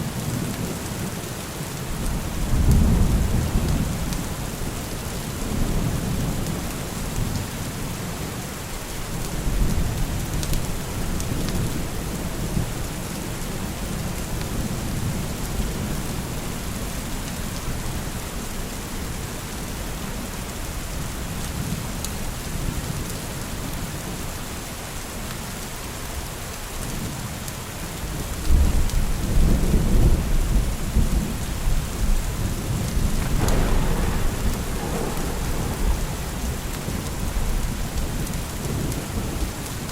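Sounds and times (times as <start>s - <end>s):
steady rain: 0.0s - 39.9s
rolling thunder: 1.9s - 4.5s, 28.5s - 39.9s.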